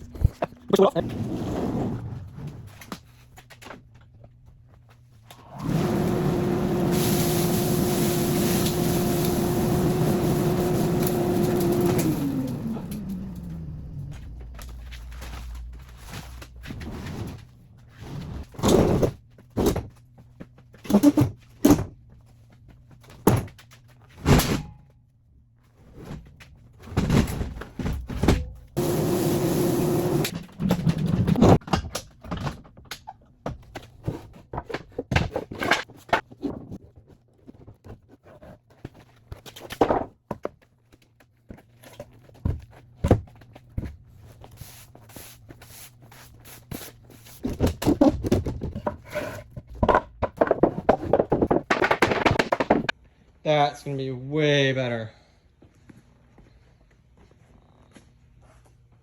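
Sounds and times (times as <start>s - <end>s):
steady whirring: 5.5s - 16.6s, 28.8s - 30.6s
wooden knocks and thuds: 47.5s - 52.9s.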